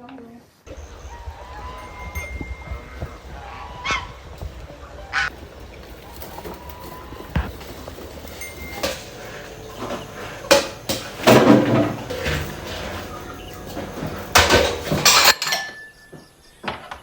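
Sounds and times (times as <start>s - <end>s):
dishes and pots clattering: 6.1s - 16.9s.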